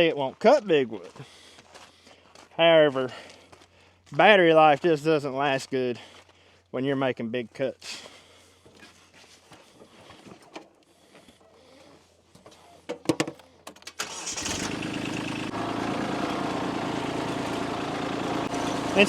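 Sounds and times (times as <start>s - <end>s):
motor running steadily: 14.5s - 19.0s.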